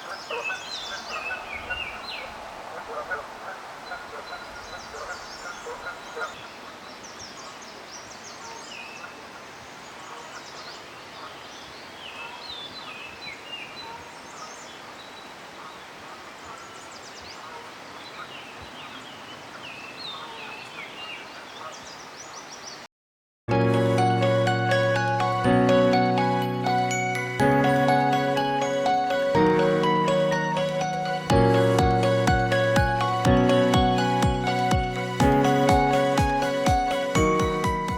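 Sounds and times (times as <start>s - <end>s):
wild birds chirping: 0.0s - 22.9s.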